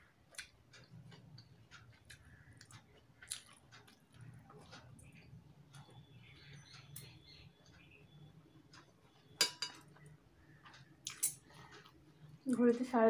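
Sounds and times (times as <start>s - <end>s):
faint close-up chewing: 0.1s - 12.7s
faint bird chirps: 5.0s - 9.4s.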